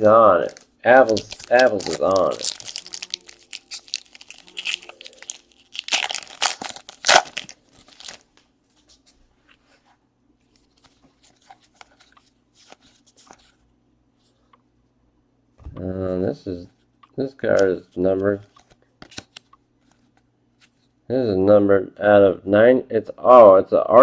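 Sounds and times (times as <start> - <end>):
card pack wrapper tearing: 0.3 - 8.4
cards rustling and clicking: 0.4 - 9.2, 10.5 - 13.6, 17.4 - 20.9.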